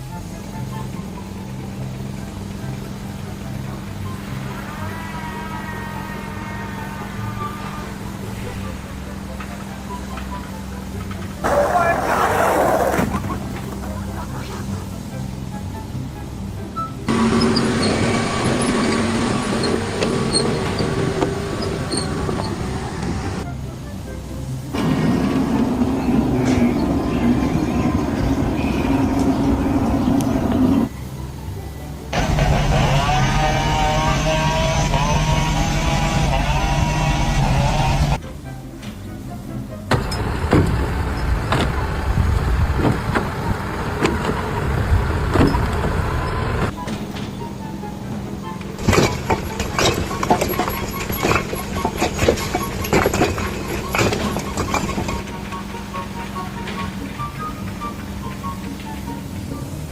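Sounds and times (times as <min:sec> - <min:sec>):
whining tones: 0:11.4 - 0:15.2
machinery din: 0:48.8 - 0:55.6.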